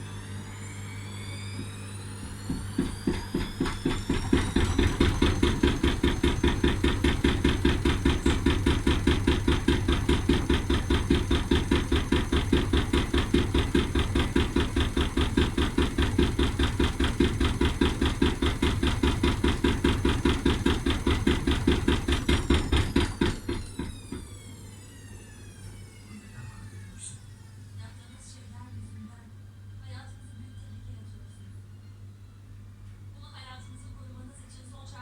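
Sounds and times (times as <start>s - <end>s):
washing machine knocking: 1.6s - 24.6s.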